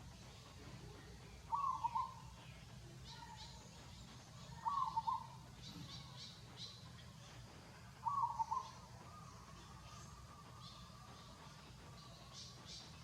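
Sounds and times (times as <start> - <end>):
faint high chirping: 0.0 - 13.0
steady low hum: 0.0 - 13.0.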